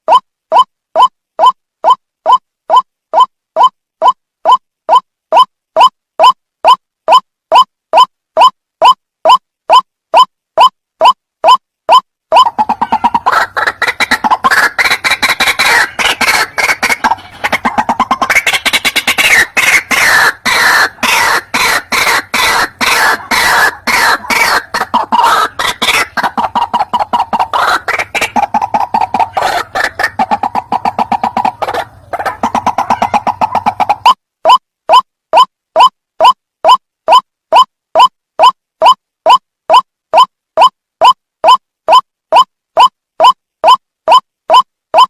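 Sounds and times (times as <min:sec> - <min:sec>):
waterhen calling: 0:12.4 - 0:35.5.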